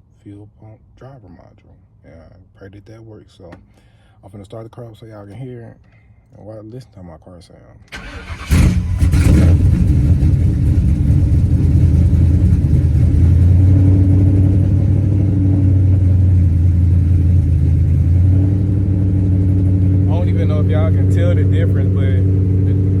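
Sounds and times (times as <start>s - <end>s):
unmuffled car engine idling: 7.9s - 23.0s.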